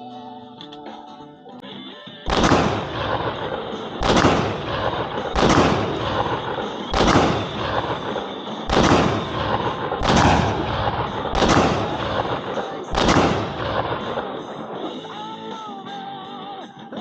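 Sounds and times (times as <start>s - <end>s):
echoing gunshots: 2.3s - 15.6s.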